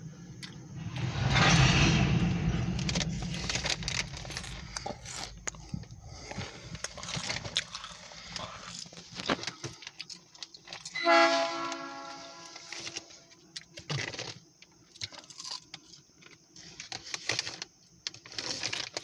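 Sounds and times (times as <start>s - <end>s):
train rumble: 0.0s - 8.4s
locomotive horn blast: 11.0s - 12.7s.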